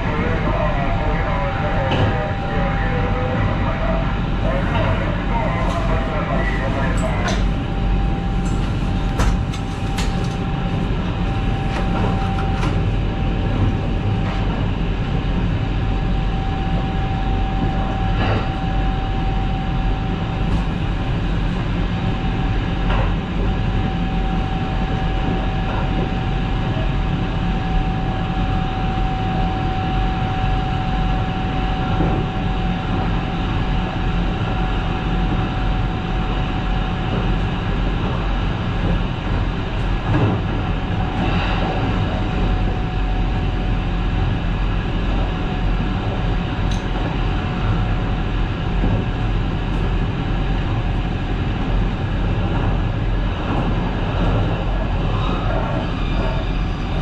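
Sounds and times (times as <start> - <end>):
wheels rumbling on rail: 0.0 - 57.0.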